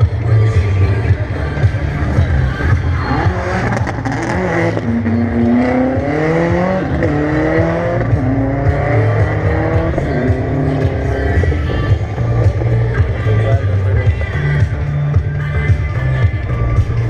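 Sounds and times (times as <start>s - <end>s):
racing engine accelerating: 3.0s - 12.9s.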